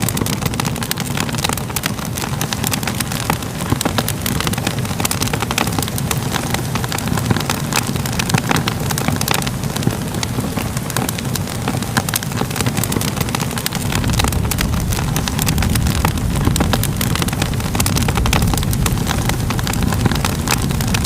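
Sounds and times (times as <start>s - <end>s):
low rumble of flames: 0.0s - 21.0s
sharp pops and snaps: 0.0s - 21.0s
wood fire crackling: 0.0s - 21.0s.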